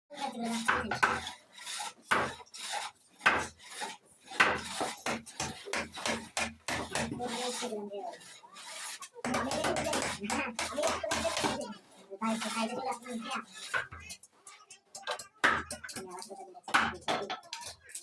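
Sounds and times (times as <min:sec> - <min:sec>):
hand tool rasping wood: 0:00.1 - 0:14.3.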